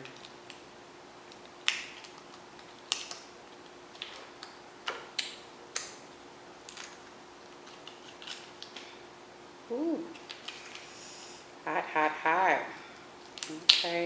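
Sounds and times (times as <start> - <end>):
lobster shell cracking: 1.2 - 6.0, 6.6 - 8.9, 10.1 - 10.9.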